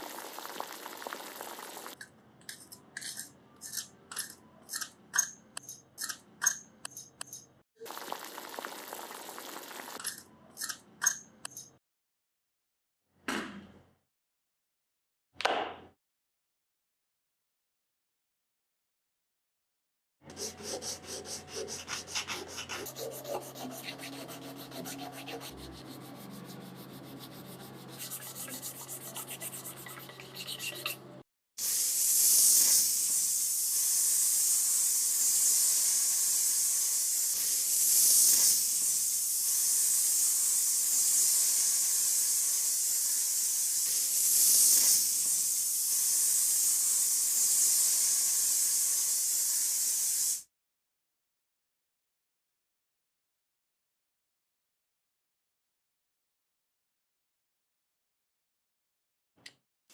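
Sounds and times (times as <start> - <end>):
sanding strokes: 20.3 - 31.0.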